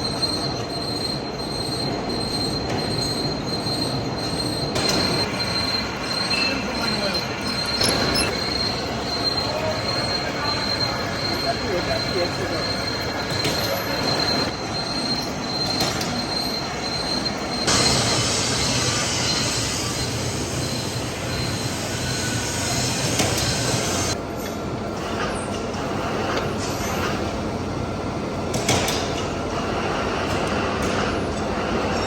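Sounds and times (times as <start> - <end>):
lathe cutting steel: 5.3 - 15.1.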